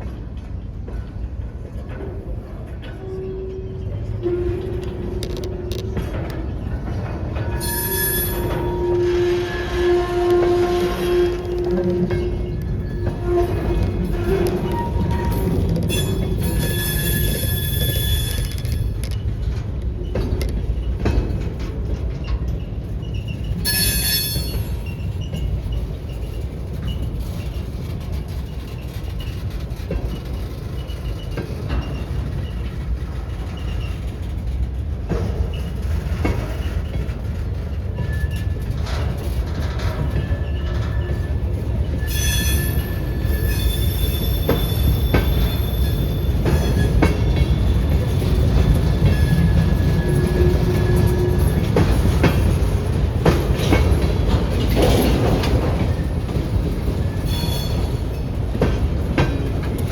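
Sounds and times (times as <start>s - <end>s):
freight train rumbling by: 0.0s - 59.9s
high-pitched wheel squeal: 7.6s - 11.7s, 12.8s - 19.0s, 40.3s - 47.2s, 49.0s - 51.9s, 57.0s - 58.0s.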